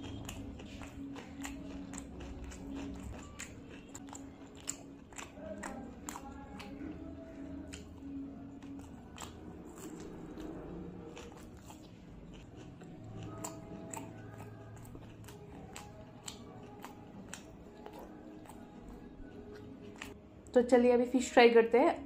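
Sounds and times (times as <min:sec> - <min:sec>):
person chewing: 0:00.0 - 0:20.2.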